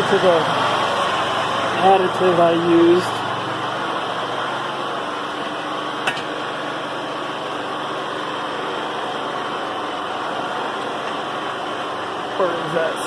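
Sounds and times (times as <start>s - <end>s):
generator running: 0.0s - 13.0s.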